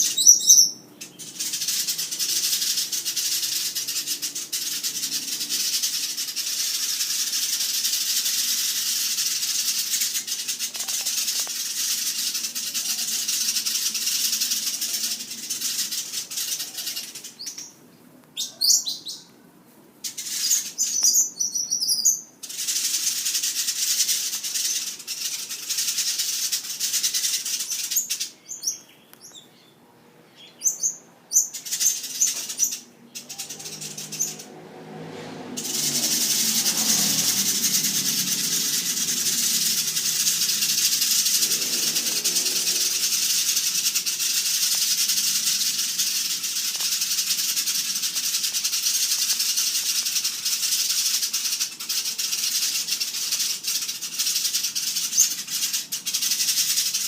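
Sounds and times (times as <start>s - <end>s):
bird chirps: 0.0s - 19.4s, 20.0s - 34.6s, 35.5s - 57.0s
birds chattering: 0.0s - 57.0s.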